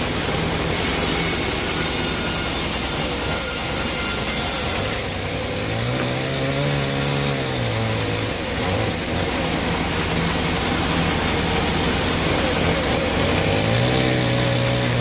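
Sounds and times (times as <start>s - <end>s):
high-pitched cutting hiss: 0.7s - 5.1s.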